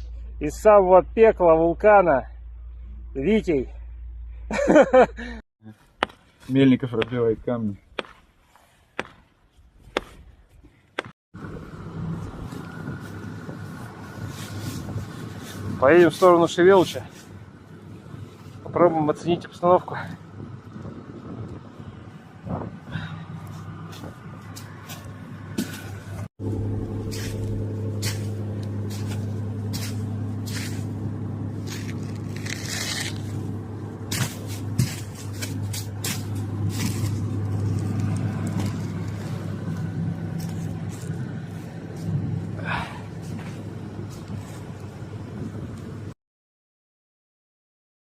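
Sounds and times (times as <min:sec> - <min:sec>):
vehicle engine running: 0:11.4 - 0:18.7, 0:23.0 - 0:46.1.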